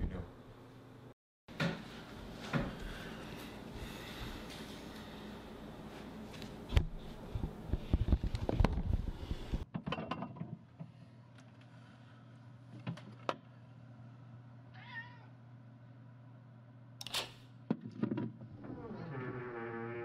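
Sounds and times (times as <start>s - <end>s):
cat meowing: 14.7s - 15.3s.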